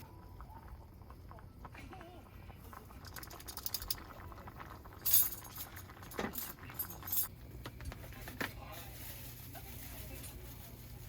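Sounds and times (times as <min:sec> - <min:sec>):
small hard objects clinking: 0:03.0 - 0:07.3.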